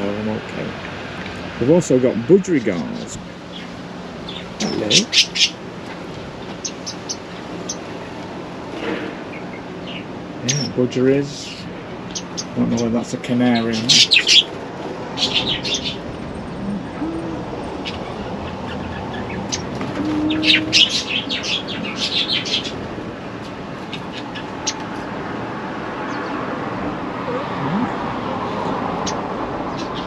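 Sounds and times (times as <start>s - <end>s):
budgerigars chirping: 4.3s - 5.6s, 13.5s - 14.5s, 15.2s - 16.0s, 20.4s - 22.8s.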